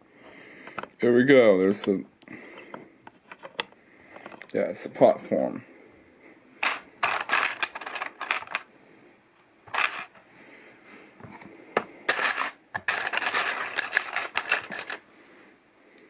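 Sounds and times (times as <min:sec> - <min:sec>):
plastic bricks clicking: 0:06.6 - 0:08.7, 0:09.7 - 0:10.1, 0:11.8 - 0:15.0.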